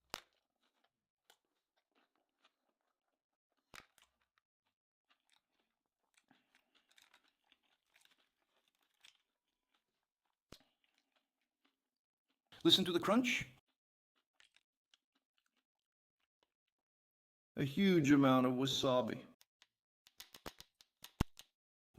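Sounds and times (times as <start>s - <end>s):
chewing and crunching: 0.0s - 12.6s, 13.4s - 16.8s.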